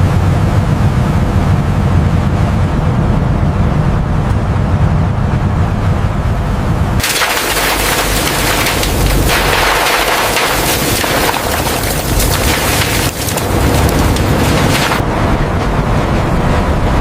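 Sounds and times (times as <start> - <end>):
low heavy rumble: 0.0 - 17.0
rushing splashing water: 7.0 - 15.0.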